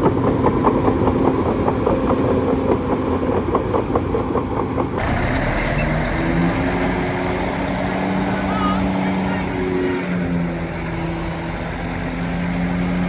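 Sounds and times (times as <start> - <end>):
heavy machine engine knocking: 5.0 - 9.0
steady engine tone: 5.0 - 9.1.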